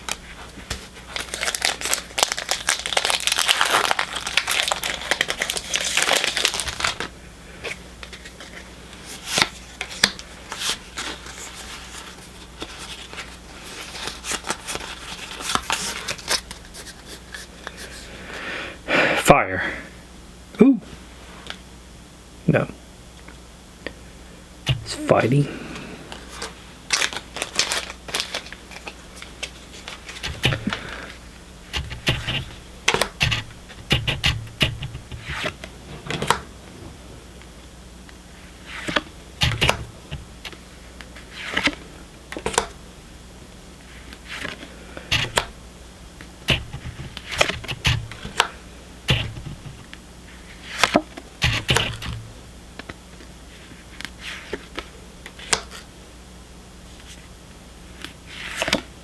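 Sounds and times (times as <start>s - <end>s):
trading cards clicking and rustling: 0.0s - 8.6s, 24.7s - 25.5s, 26.1s - 36.4s, 38.7s - 40.6s, 44.1s - 45.6s, 46.5s - 50.0s, 50.7s - 53.3s.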